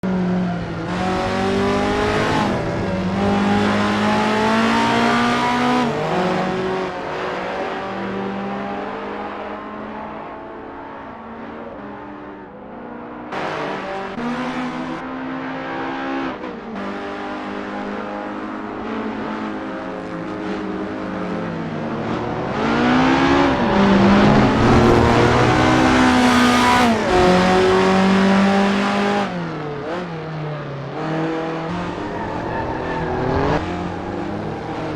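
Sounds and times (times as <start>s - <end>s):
car engine revving hard: 0.7s - 9.0s, 20.8s - 30.3s, 30.9s - 34.9s.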